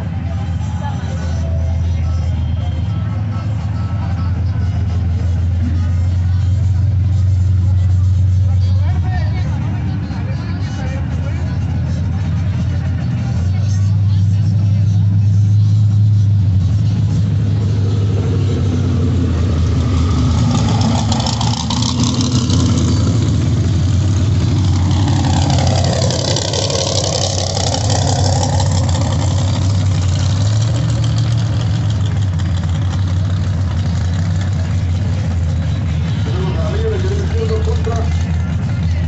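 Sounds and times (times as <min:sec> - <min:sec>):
engines idling with low rumble: 0:00.0 - 0:39.0
higher engine note dipping in pitch: 0:17.4 - 0:32.5.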